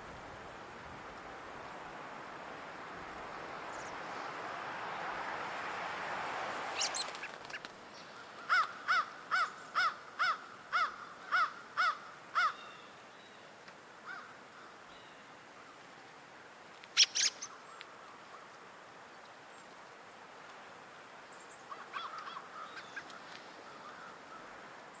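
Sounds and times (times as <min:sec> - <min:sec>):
bird calling evenly spaced notes: 0:02.8 - 0:13.5, 0:16.9 - 0:19.8, 0:21.3 - 0:25.0
short sharp bird calls: 0:06.7 - 0:13.0, 0:17.0 - 0:18.5.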